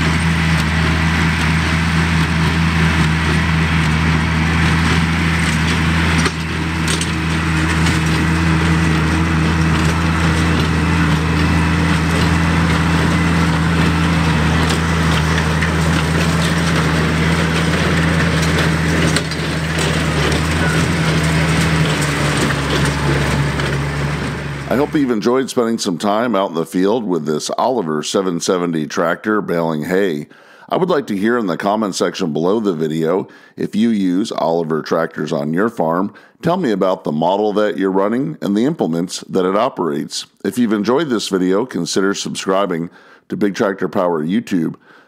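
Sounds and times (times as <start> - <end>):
baler crunching and rattling hay: 0.0 - 25.0
tractor engine running under load: 0.0 - 29.0.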